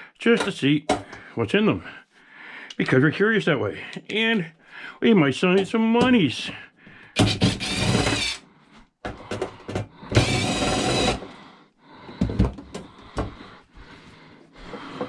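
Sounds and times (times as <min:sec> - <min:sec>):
power drill running: 0:07.2 - 0:08.4, 0:10.1 - 0:11.3
handling knocks and clicks: 0:09.0 - 0:09.9.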